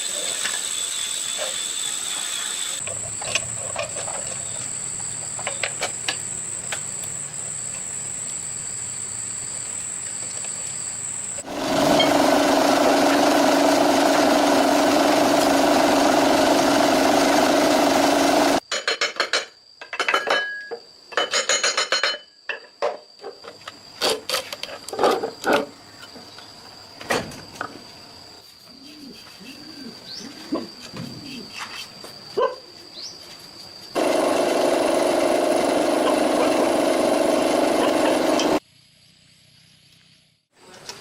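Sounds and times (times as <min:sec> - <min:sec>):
motor running: 0:11.4 - 0:18.6, 0:34.0 - 0:38.6.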